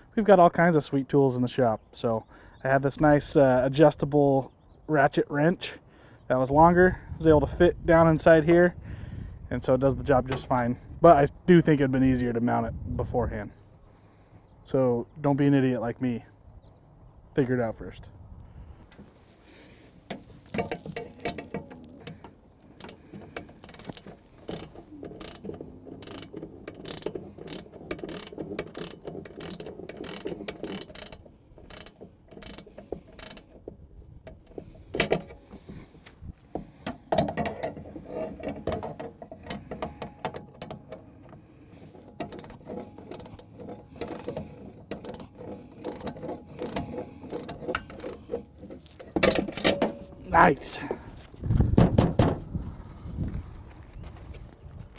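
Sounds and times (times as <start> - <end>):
ratchet wrench clicking: 23.6 - 33.5, 42.2 - 48.4
metal knocks: 51.7 - 52.5.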